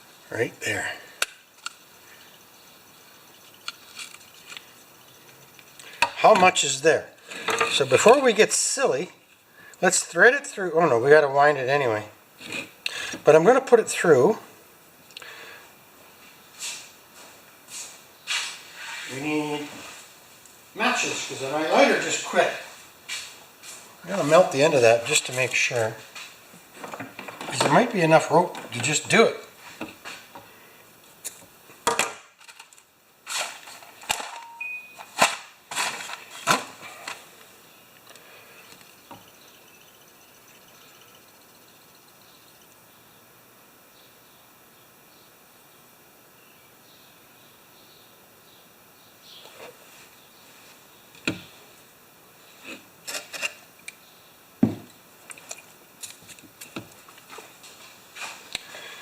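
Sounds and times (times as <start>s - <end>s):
clicks and knocks on mower parts: 7.3s - 8.2s, 26.8s - 29.2s, 31.3s - 34.4s.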